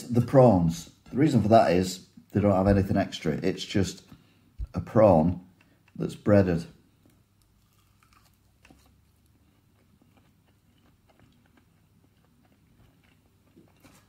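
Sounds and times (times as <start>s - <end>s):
faint chewing: 6.9s - 14.0s.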